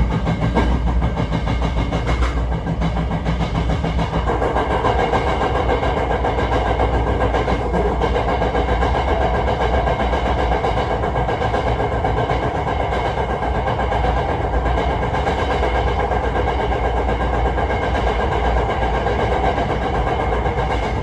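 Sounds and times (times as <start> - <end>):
electric train running: 0.0 - 21.0.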